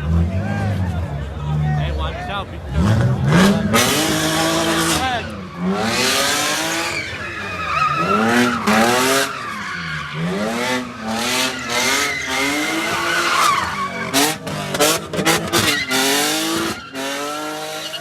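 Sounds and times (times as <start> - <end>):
car engine revving: 0.0 - 18.0
tyres squealing: 4.1 - 18.0.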